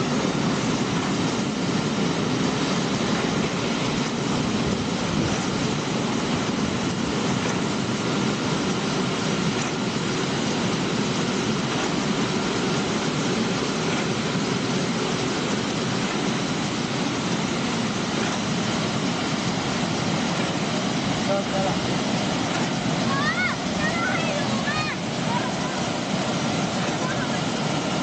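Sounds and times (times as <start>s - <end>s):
machine motor running: 0.0s - 28.0s.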